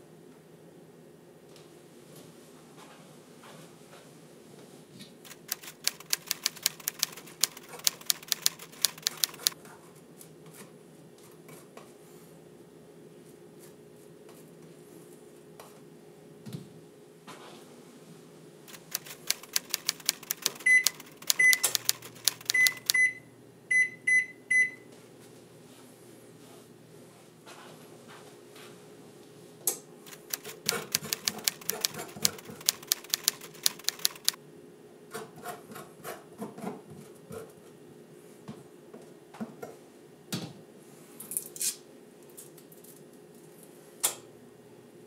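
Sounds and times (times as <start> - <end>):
electric range touch control beeps: 20.6 - 24.9.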